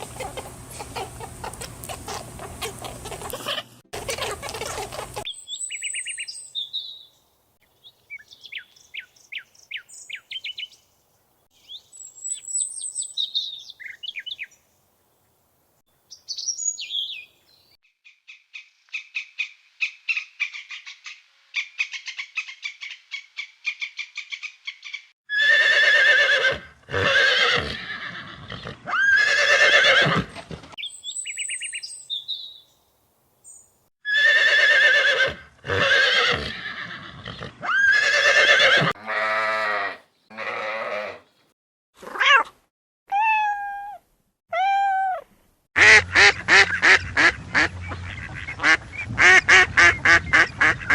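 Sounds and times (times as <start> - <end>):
birds chirping: 0.0 - 14.8, 16.0 - 25.1, 30.8 - 32.8, 45.9 - 50.9
bird trill: 5.2 - 7.1, 30.8 - 32.7
horses whinnying: 25.3 - 30.6, 34.1 - 41.2.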